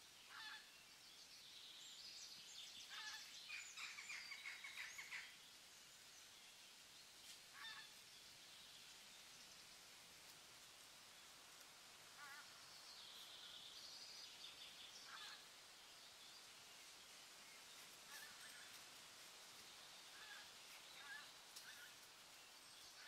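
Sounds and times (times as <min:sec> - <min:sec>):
steady outdoor hiss: 0:00.0 - 0:23.0.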